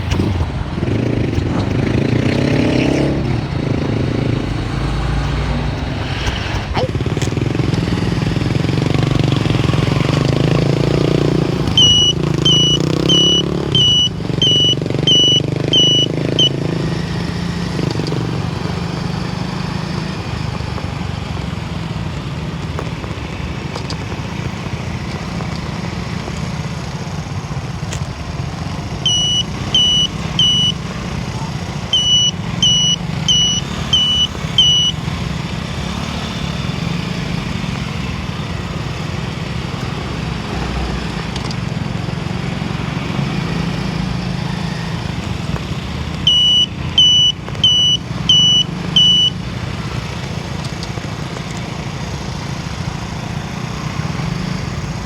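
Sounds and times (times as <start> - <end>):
vehicle engine and road noise: 0.0 - 55.0
short high electronic beeps: 11.8 - 16.6, 29.1 - 30.8, 32.0 - 35.0, 46.3 - 49.4.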